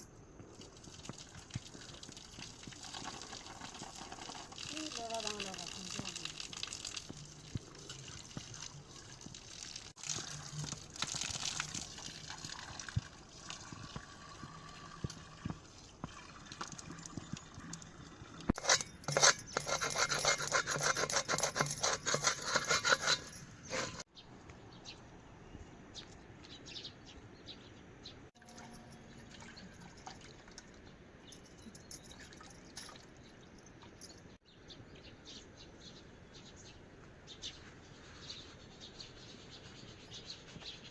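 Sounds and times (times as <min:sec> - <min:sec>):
water running and splashing: 0:00.5 - 0:18.5.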